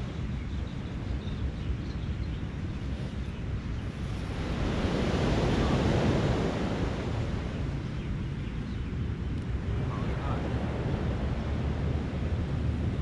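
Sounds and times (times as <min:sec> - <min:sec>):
wind buffeting microphone: 0:00.0 - 0:13.0
small ocean waves breaking: 0:02.8 - 0:07.8.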